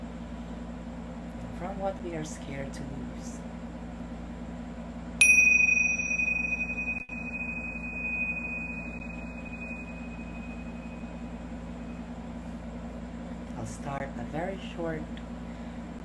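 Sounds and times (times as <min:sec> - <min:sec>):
metal meditation chime ringing: 0:05.2 - 0:12.1.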